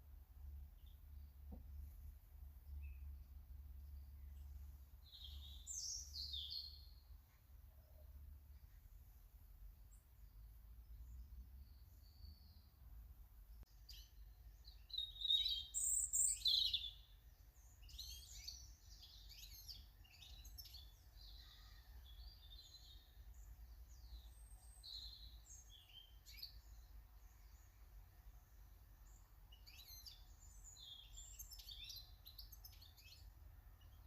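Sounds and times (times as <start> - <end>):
birds singing and chirping: 3.8 - 7.0, 13.6 - 27.7, 29.0 - 34.0.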